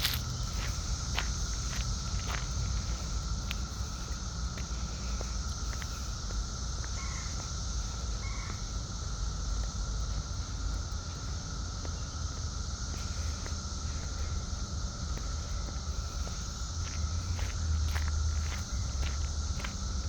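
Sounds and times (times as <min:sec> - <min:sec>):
cicadas droning: 0:00.0 - 0:20.0.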